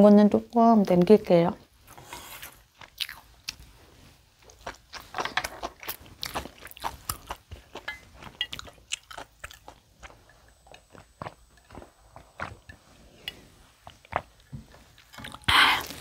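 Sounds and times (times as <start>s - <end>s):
person chewing food: 1.9s - 16.0s.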